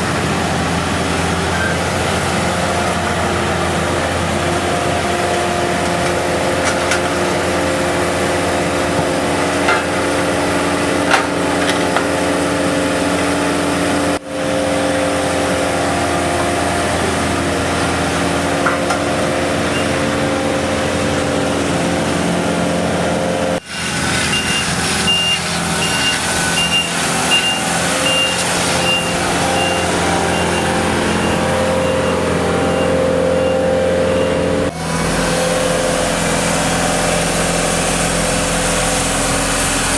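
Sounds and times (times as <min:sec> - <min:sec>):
heavy equipment engine running: 0:00.0 - 0:39.9
reversing alarm beeping: 0:19.7 - 0:20.0, 0:23.6 - 0:34.7.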